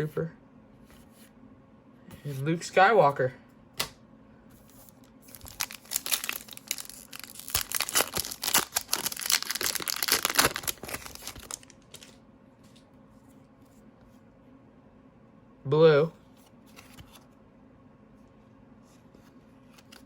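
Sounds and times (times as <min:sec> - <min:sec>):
wrapper tearing and crinkling: 0:05.0 - 0:12.2.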